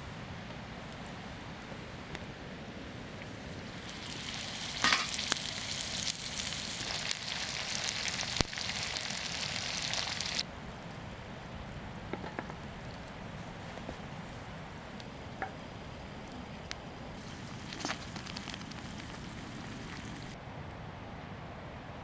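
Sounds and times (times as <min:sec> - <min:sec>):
food sizzling in a pan: 0:03.4 - 0:10.4, 0:17.2 - 0:20.4.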